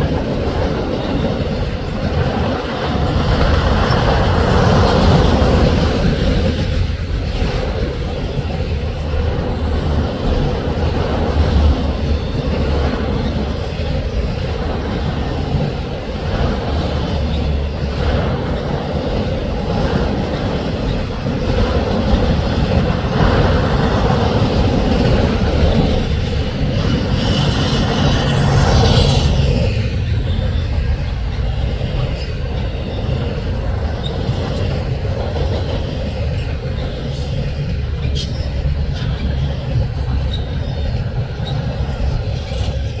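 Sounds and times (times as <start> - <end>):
train wheels rumbling on rail: 0.0 - 43.0
high wheel squeal: 26.8 - 35.0.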